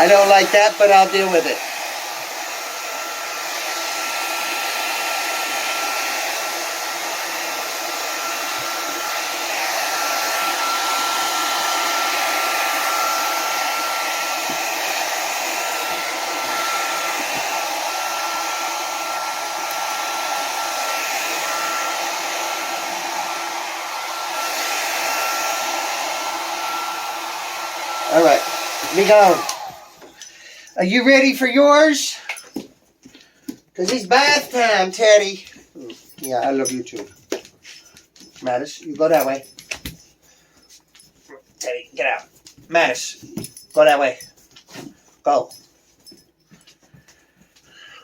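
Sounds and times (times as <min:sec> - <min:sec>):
hair dryer blowing: 0:00.0 - 0:32.7, 0:33.5 - 0:35.5.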